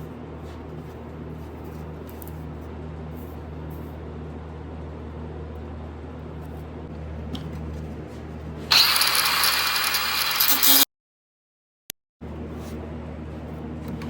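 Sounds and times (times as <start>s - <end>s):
shop machinery hum: 0.0s - 10.9s
loud harsh power tool: 8.7s - 10.9s.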